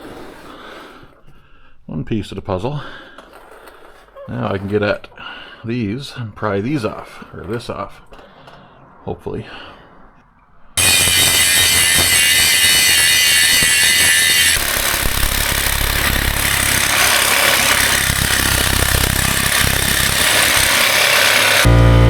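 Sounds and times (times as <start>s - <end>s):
loud power tool on rivets: 10.8s - 21.8s.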